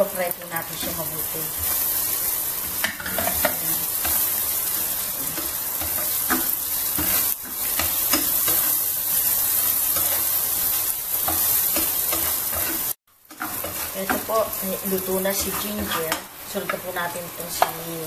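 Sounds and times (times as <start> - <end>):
ginger and garlic sizzling in oil: 0.0 - 18.0
spatula scraping a pan: 0.7 - 17.8.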